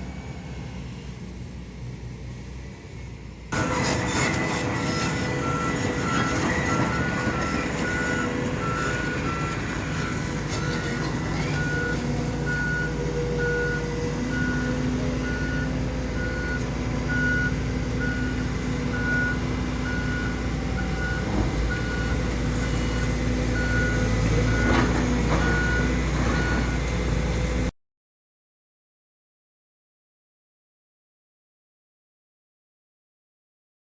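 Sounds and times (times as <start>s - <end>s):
diesel engine running: 0.0s - 27.7s
reversing alarm beeping: 3.6s - 27.7s.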